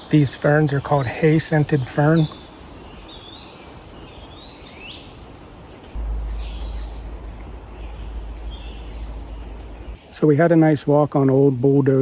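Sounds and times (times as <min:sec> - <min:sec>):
songbirds whistling: 0:00.0 - 0:10.2
steady low rumble: 0:05.9 - 0:10.0.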